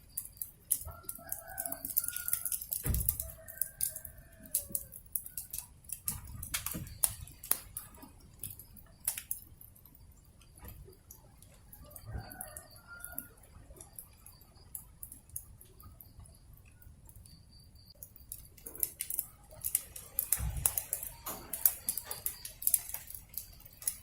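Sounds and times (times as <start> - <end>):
fire popping: 0.0 - 24.0
wood fire crackling: 0.0 - 24.0
rooster crowing: 0.8 - 5.7, 11.7 - 13.5.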